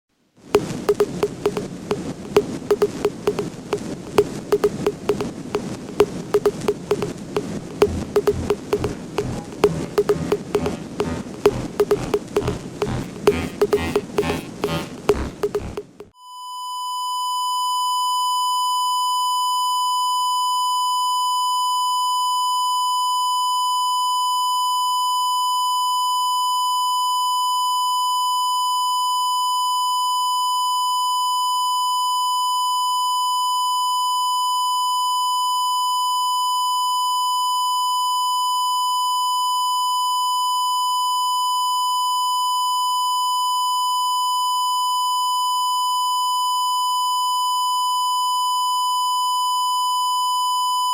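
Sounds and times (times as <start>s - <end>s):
high-pitched electronic tone: 0.9s - 3.5s, 4.1s - 5.3s, 5.9s - 7.1s, 7.7s - 16.1s.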